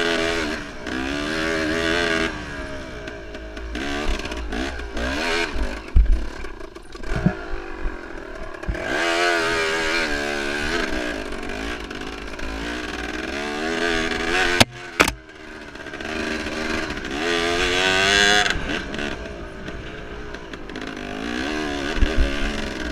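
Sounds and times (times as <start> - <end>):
motorcycle engine revving: 0.0 - 22.9
bike knocks and clatter: 14.5 - 15.2.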